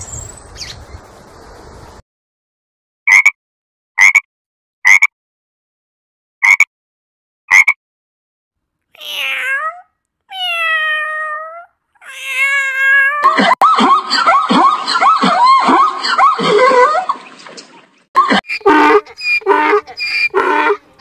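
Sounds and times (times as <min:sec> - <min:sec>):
cat meowing: 0:09.0 - 0:13.3
sharp squawk-like calls: 0:18.5 - 0:20.8.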